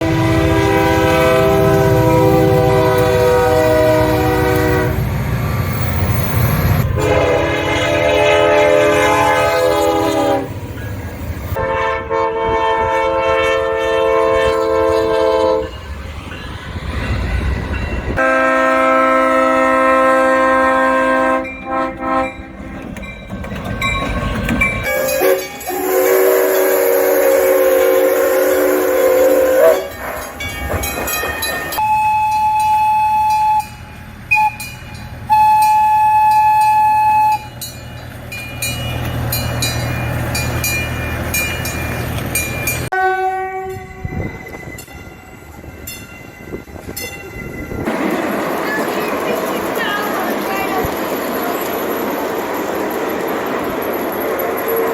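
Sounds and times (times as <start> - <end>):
locomotive air horn chords: 0.0 - 5.1, 6.9 - 10.6, 11.6 - 15.8, 18.2 - 22.5, 24.9 - 30.0, 42.9 - 44.1
train rumble: 0.0 - 54.9.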